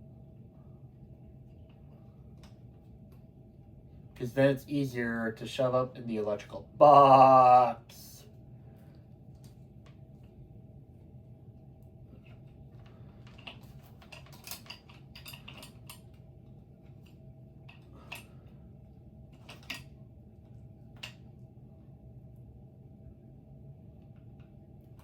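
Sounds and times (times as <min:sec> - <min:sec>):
low steady hum: 0:00.0 - 0:25.0
clicks and clinks of hardware: 0:13.4 - 0:16.1, 0:19.4 - 0:19.9.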